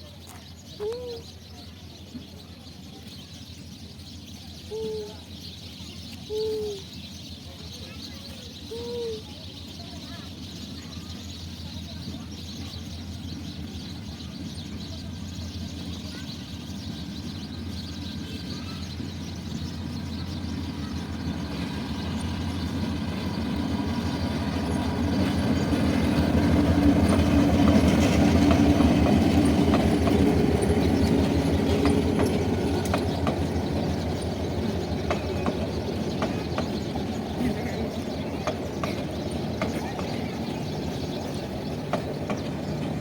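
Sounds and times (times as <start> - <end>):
train rumbling past: 0.5 - 43.0
wheels clacking over rail joints: 11.4 - 43.0.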